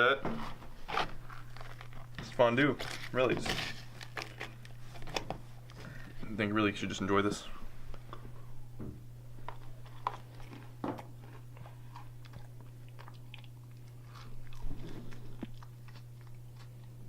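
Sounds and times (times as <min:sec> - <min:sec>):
person chewing and crunching: 0:00.9 - 0:02.2, 0:09.4 - 0:17.0.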